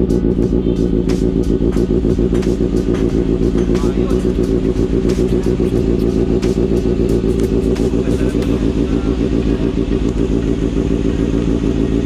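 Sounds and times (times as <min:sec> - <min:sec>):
motorcycle idling: 0:00.0 - 0:12.0.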